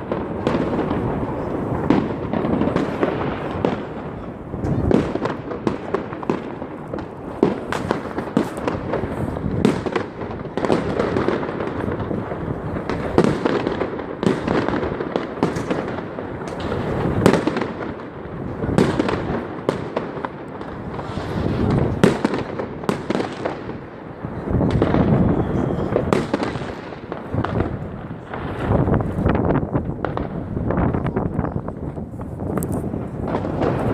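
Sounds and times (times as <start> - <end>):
firecrackers crackling and rumbling: 0.0 - 33.9
fireworks sharp bangs: 0.0 - 33.9.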